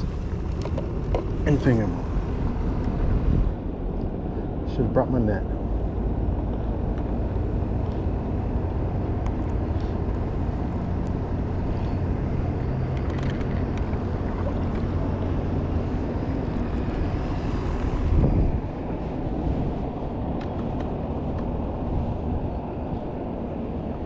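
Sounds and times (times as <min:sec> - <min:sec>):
wind on microphone: 0:00.0 - 0:04.7, 0:05.5 - 0:24.0
boat motor running: 0:05.0 - 0:24.0.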